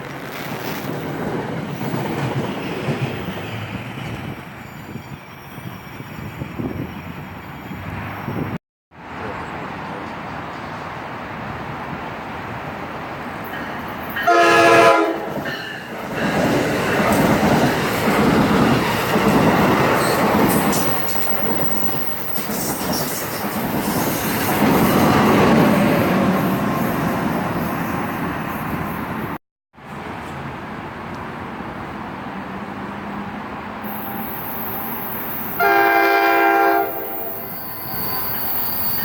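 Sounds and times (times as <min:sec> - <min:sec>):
train rolling past: 0:00.0 - 0:39.0
train horn blast: 0:14.2 - 0:15.4, 0:35.5 - 0:38.2.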